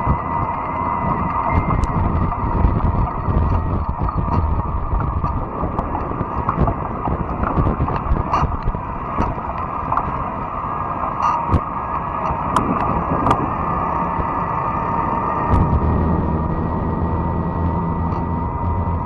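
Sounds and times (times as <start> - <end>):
small clicks and ticks: 0.0 - 13.5
bike tyres rumbling on trail: 0.0 - 19.0
wind on microphone: 0.0 - 19.0.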